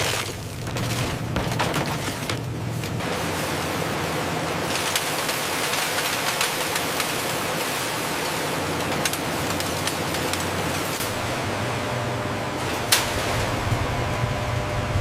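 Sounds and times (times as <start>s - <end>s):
sharp clicks and crackles: 4.6s - 11.1s.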